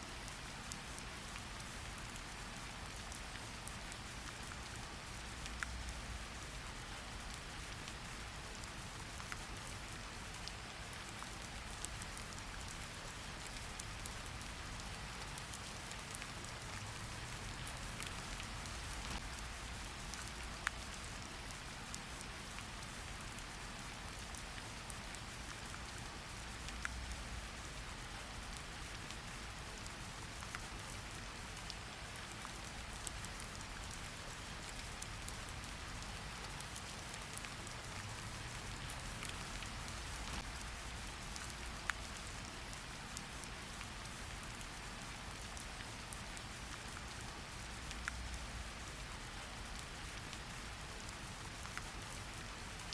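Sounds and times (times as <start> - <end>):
rain drops pattering: 0.0 - 52.9
rain hiss: 0.0 - 52.9.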